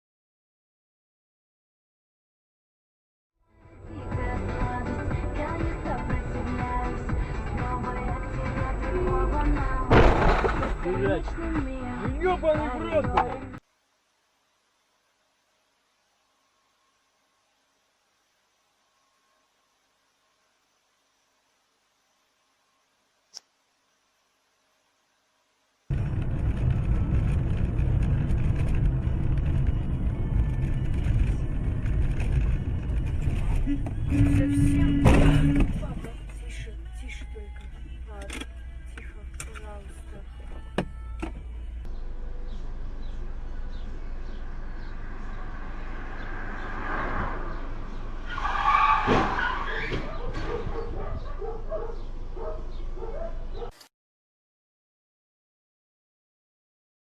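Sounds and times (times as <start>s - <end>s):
car road and engine rumble: 3.6s - 13.6s, 25.9s - 53.7s
collision knocks: 9.9s - 10.8s
tyres skidding: 25.9s - 53.7s.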